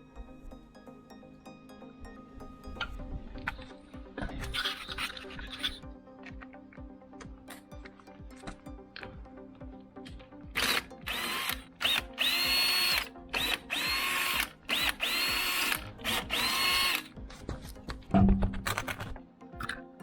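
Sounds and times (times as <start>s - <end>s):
cordless drill whining: 4.4s - 5.8s, 10.5s - 17.2s.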